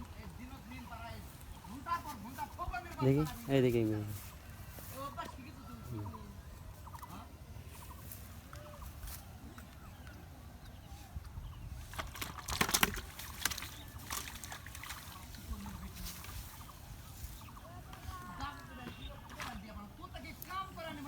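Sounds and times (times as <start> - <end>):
low steady background noise: 0.0 - 21.0
water splashing and sloshing: 11.7 - 17.7.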